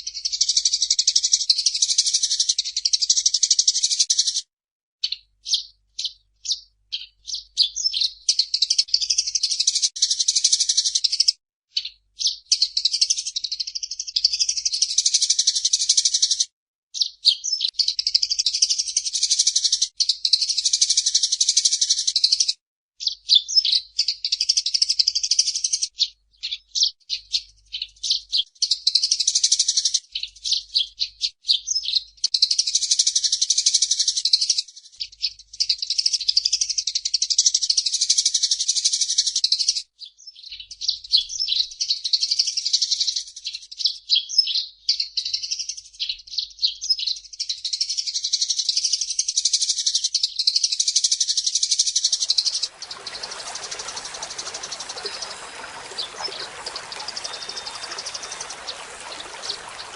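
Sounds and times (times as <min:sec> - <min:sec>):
sparrow chirping rapidly: 0:51.2 - 0:59.9.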